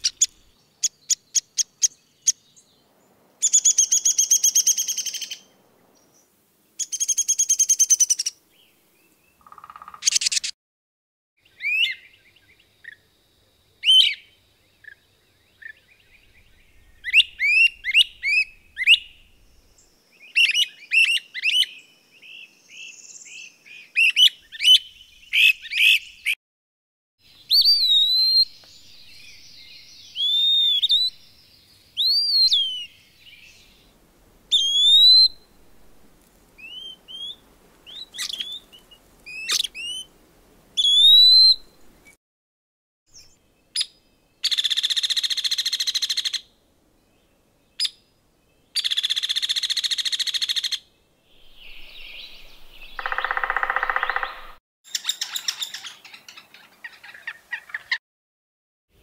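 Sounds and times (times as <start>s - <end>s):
slurred whistled bird notes: 16.3s - 26.4s, 27.4s - 31.4s, 32.0s - 33.8s, 34.5s - 35.5s, 36.6s - 40.1s, 40.8s - 41.8s, 51.4s - 56.3s.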